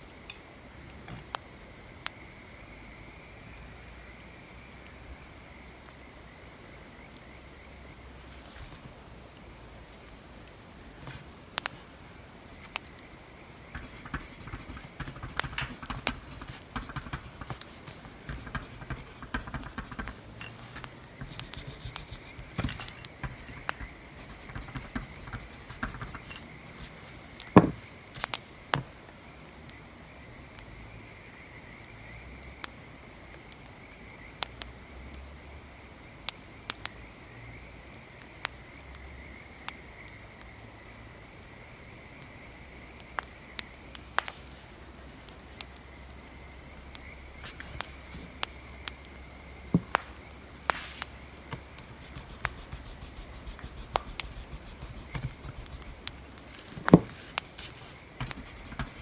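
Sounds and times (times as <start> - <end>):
scratchy writing on paper: 13.8 - 27.8, 50.7 - 59.0.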